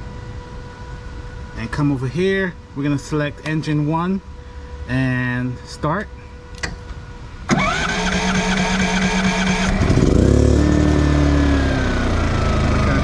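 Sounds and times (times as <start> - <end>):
generator engine running: 6.5 - 13.0
generator starter cranking: 7.5 - 10.4.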